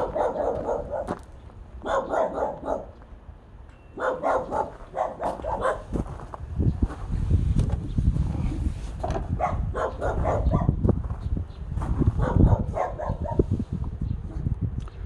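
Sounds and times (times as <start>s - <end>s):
dog barking: 0.0s - 1.2s, 1.8s - 3.0s, 4.0s - 6.0s, 9.4s - 10.8s, 12.2s - 13.4s.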